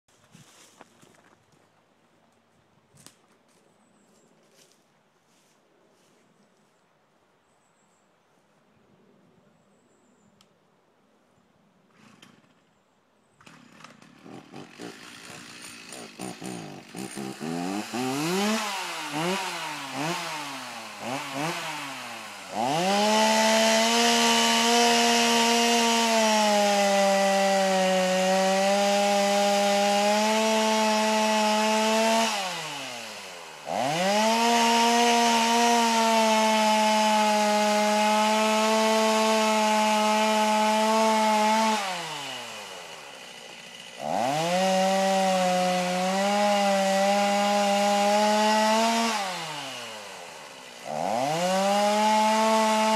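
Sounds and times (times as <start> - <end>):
chainsaw revving and cutting: 11.9 - 12.6, 13.4 - 52.9.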